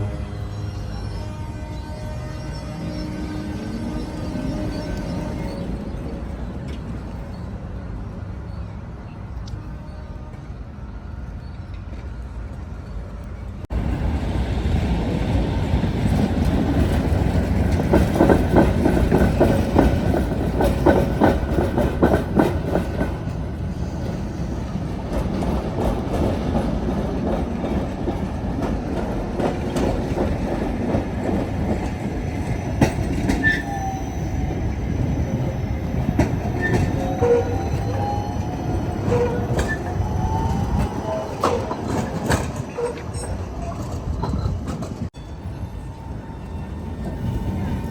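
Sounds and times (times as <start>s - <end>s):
tram wheels clattering on rails: 11.4s - 47.9s
thin squealing tones: 32.4s - 44.6s.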